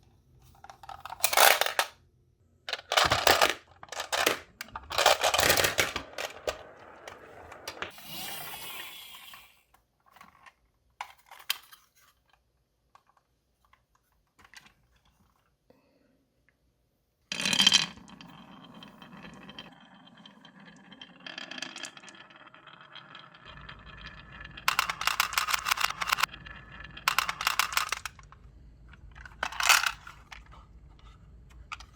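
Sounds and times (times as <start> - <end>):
marbles clattering down marble run: 2.7 - 8.3, 17.3 - 28.4, 29.2 - 30.5.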